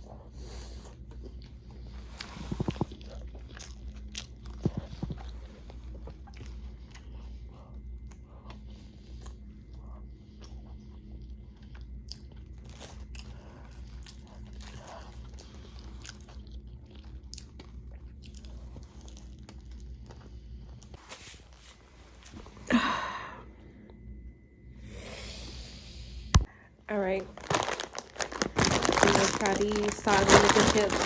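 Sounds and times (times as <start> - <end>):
steady low hum: 0.0 - 31.0
person chewing food: 0.2 - 21.0.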